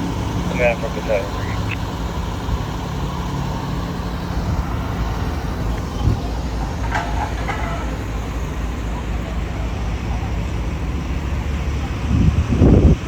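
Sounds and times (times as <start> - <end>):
fire engine rumbling: 0.0 - 13.0
short pitched chirps: 1.2 - 1.8.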